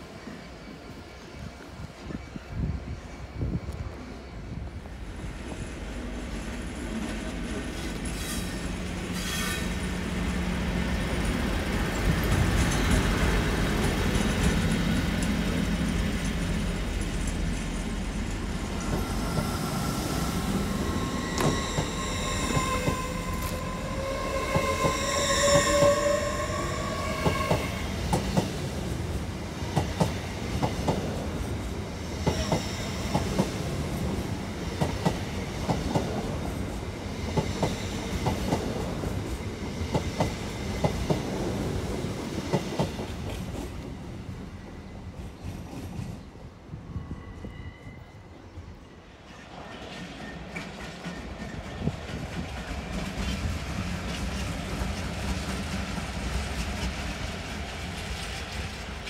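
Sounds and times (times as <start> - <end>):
train rumble: 0.8 - 47.6, 49.3 - 59.0
wheel squeal: 20.4 - 27.9.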